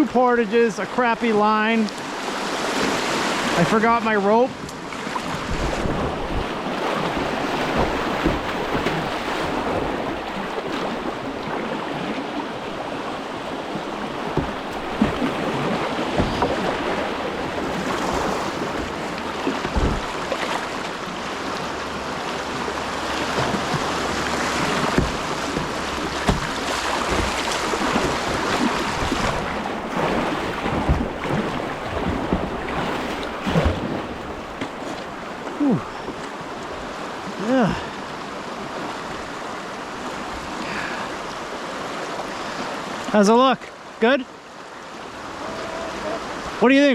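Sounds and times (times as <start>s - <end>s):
whitewater rushing: 0.0s - 44.2s
wind buffeting microphone: 4.8s - 11.8s
short low knocks: 14.2s - 20.5s, 23.4s - 29.6s.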